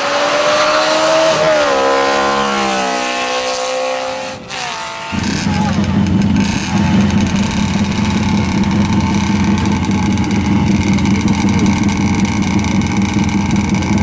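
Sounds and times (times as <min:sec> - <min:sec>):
motorcycle engines idling: 0:05.1 - 0:14.0.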